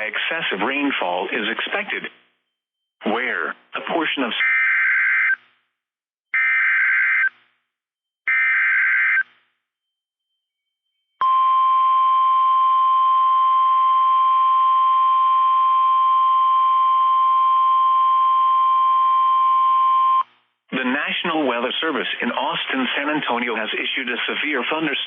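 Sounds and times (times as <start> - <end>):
steady warning alarm tone: 8.3 - 9.2.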